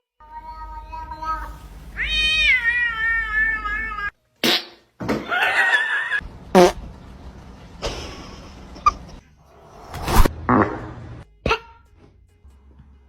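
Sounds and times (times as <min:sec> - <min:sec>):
cat yowling: 0:00.4 - 0:04.1, 0:05.3 - 0:06.2.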